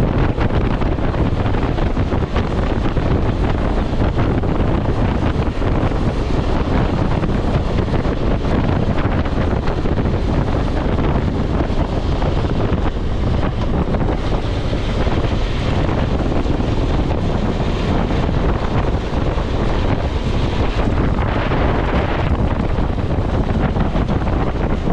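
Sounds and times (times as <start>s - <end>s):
motorcycle engine: 0.0s - 24.9s
road noise: 0.0s - 24.9s
wind rushing over microphone: 0.0s - 24.9s.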